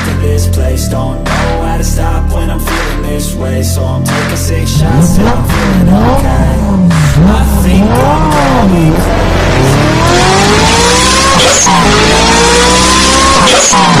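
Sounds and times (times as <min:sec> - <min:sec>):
car engine revving: 0:04.7 - 0:14.0.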